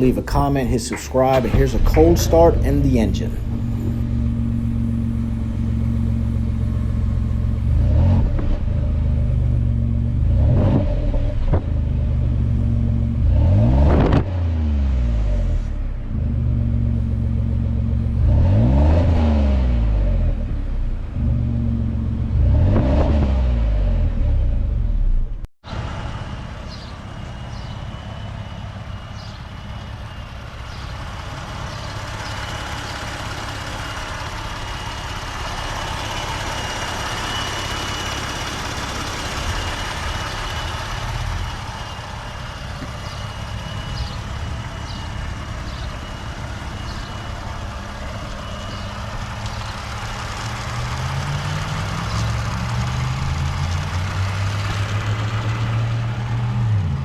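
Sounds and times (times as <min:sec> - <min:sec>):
car engine idling: 0:00.0 - 0:13.8, 0:14.7 - 0:22.8, 0:23.6 - 0:57.0
thin steady whine: 0:25.7 - 0:50.7.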